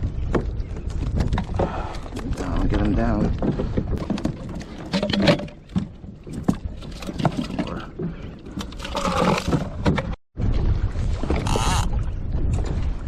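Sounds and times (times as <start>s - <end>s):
gear clunking on plastic kayak: 0.2s - 10.2s.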